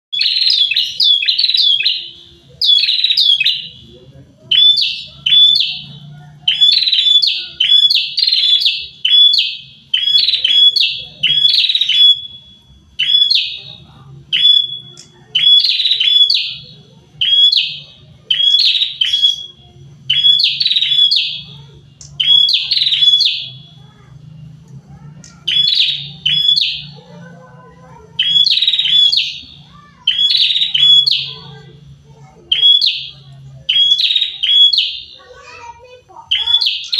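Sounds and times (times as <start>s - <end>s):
birds chirping: 0.1s - 36.9s.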